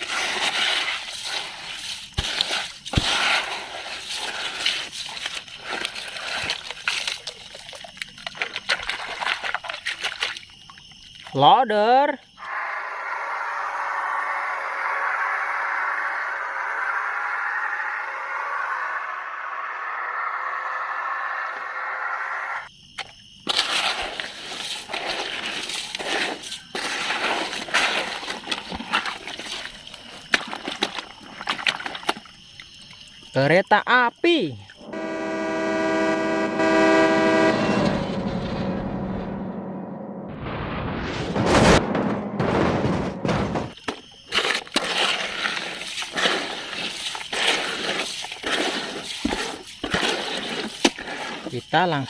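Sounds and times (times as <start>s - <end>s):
plastic toys scraping and clattering: 43.7s - 51.6s.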